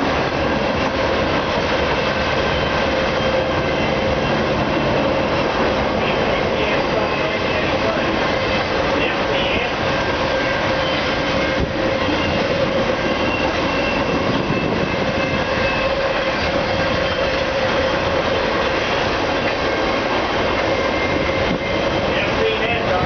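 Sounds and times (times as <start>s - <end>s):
train wheels rumbling on rail: 0.0s - 23.0s
thin wheel squeal: 10.3s - 19.0s.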